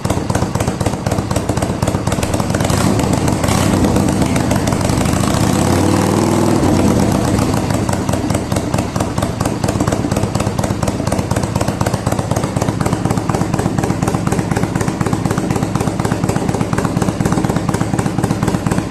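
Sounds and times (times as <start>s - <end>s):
motorcycle engine idling: 0.0s - 18.9s.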